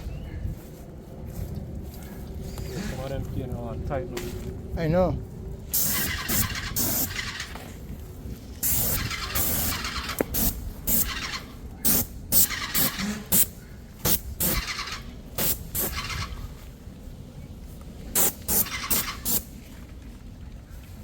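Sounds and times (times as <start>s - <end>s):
paint sprayer hissing: 5.7s - 7.6s, 8.6s - 16.3s, 18.1s - 19.6s.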